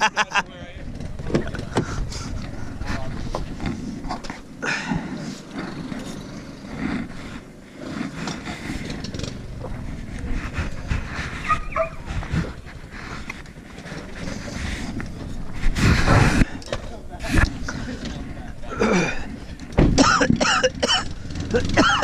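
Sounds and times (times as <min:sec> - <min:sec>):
vehicle engine running: 0:00.4 - 0:22.0
dog call: 0:11.4 - 0:12.1.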